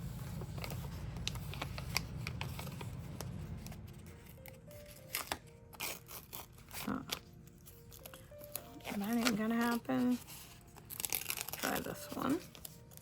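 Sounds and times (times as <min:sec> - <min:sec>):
soft background music: 0:00.0 - 0:13.0
stickers peeled and pressed: 0:00.5 - 0:13.0
paper crinkles and taps: 0:07.9 - 0:13.0.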